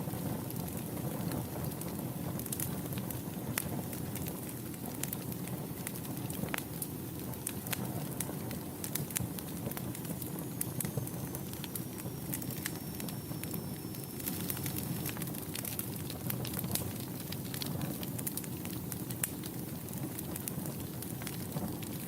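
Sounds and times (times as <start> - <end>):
wood fire crackling: 0.0 - 22.0
faint high whistle: 10.5 - 15.2.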